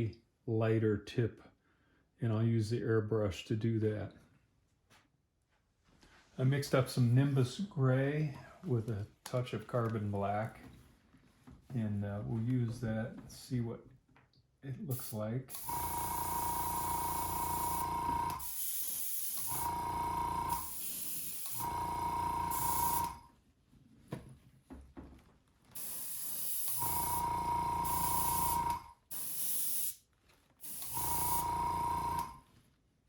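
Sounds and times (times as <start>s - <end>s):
airbrush spraying hiss: 14.9s - 19.7s, 20.5s - 21.7s, 22.5s - 23.1s, 25.8s - 27.2s, 27.8s - 30.0s, 30.6s - 31.5s.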